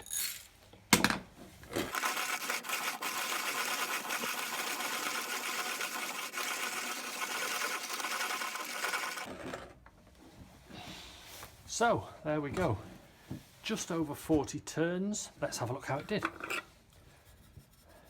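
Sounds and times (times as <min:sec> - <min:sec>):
hand coffee grinder crunching beans: 0:01.7 - 0:09.4.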